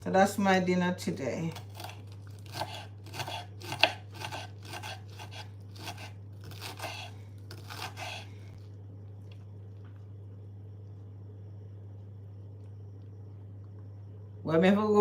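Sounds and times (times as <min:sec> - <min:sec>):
steady low hum: 0:00.0 - 0:15.0
knife crunching through greens: 0:01.5 - 0:09.9.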